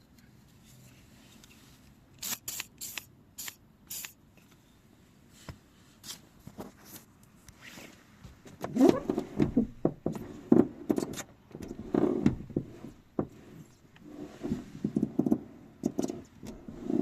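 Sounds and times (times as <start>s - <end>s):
aerosol spray hissing: 2.2s - 4.1s.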